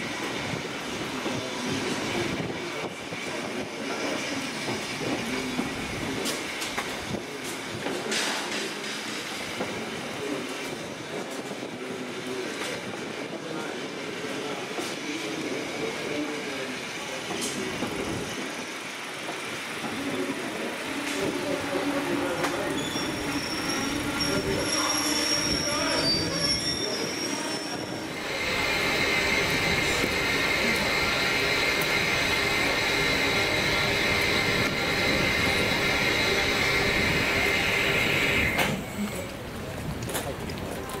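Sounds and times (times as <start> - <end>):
train coaches rumbling: 0.0 - 41.0
faint high wheel squeal: 22.3 - 39.1.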